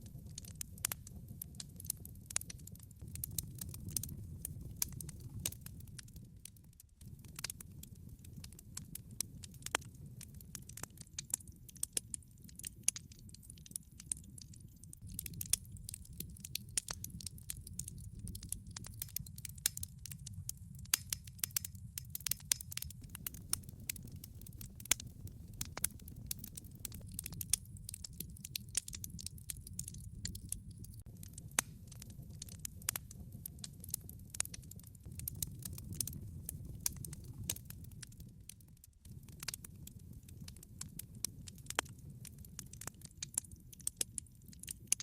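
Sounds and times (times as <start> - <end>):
low fire rumble: 0.0 - 45.0
wood fire crackling and popping: 0.0 - 45.0.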